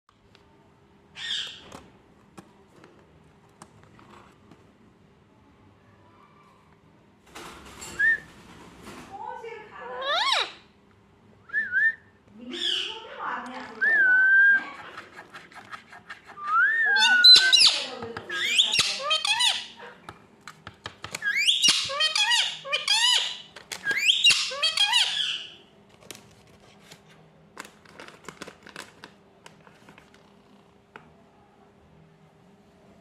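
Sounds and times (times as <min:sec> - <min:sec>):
parakeet calling: 0:01.2 - 0:01.6, 0:10.0 - 0:10.6, 0:12.5 - 0:13.4, 0:16.8 - 0:19.9, 0:21.2 - 0:25.6.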